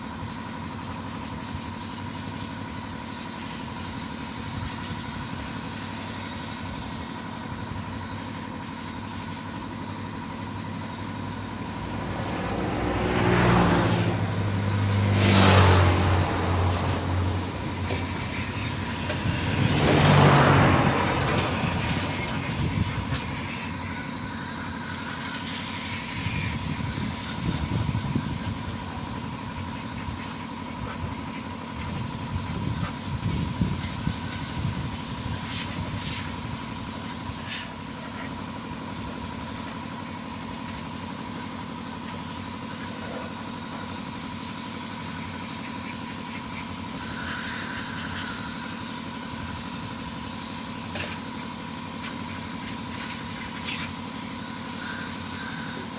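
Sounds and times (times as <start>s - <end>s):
constant whine: 9.1s - 25.3s.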